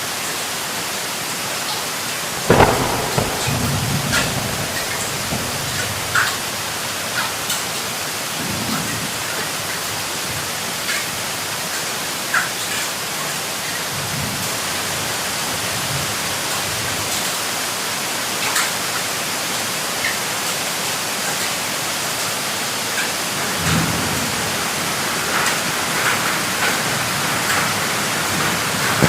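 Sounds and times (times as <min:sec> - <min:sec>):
raindrops ticking close by: 0:02.4 - 0:10.0.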